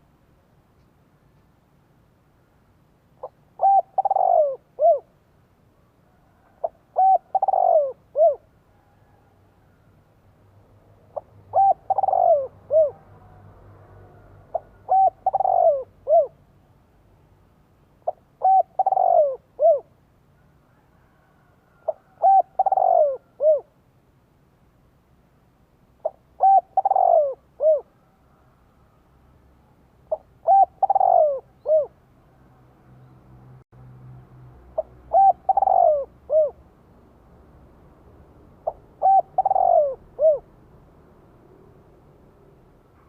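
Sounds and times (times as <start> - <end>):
dove cooing: 3.2 - 5.2, 6.1 - 9.3, 11.1 - 13.4, 14.1 - 16.4, 18.0 - 19.9, 20.8 - 23.7, 26.0 - 28.5, 30.1 - 32.0, 34.8 - 36.6, 38.6 - 40.6.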